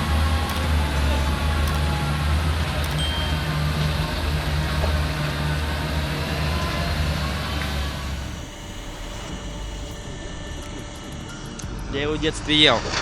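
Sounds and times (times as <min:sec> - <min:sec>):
road noise: 0:00.0 - 0:10.0
truck diesel engine droning: 0:00.0 - 0:10.1.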